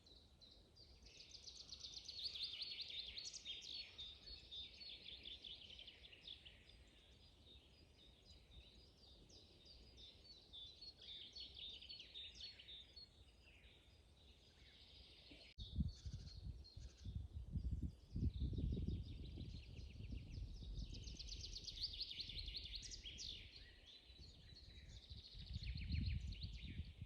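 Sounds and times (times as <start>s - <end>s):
songbirds chirping: 0.0s - 27.0s.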